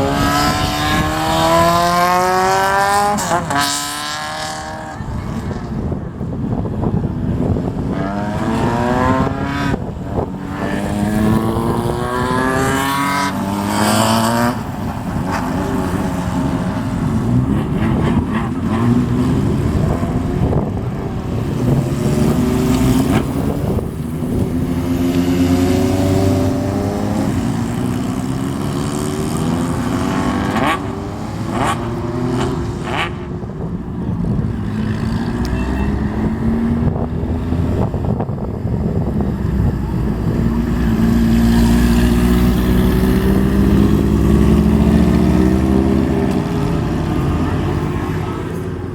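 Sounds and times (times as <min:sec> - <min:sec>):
motorcycles accelerating and revving: 0:00.0 - 0:48.9.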